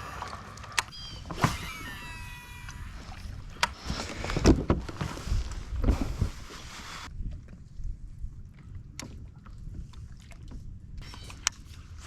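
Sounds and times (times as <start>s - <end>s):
reel brake whining: 0.0s - 4.5s.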